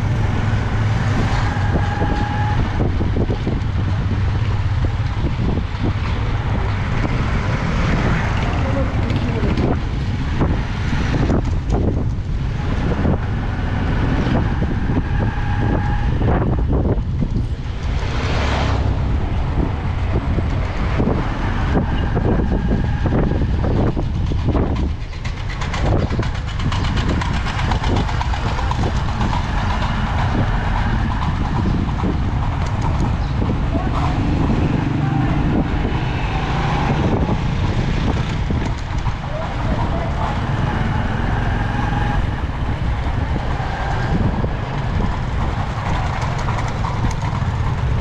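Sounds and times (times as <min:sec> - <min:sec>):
motorcycle engine rumble: 0:00.0 - 0:48.0.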